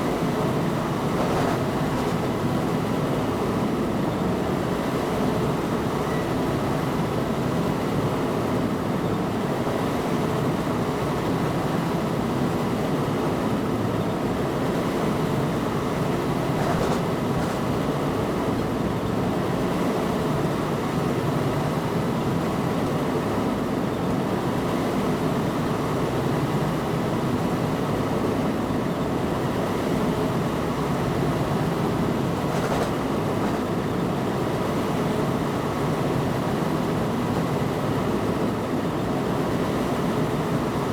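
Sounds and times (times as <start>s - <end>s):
train rumbling on track: 0.8s - 2.7s, 16.4s - 17.9s, 31.8s - 34.0s.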